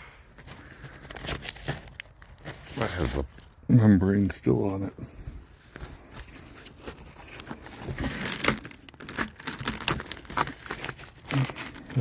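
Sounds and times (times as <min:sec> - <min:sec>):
rotten wood tearing and cracking: 0:00.8 - 0:03.7, 0:06.7 - 0:12.0.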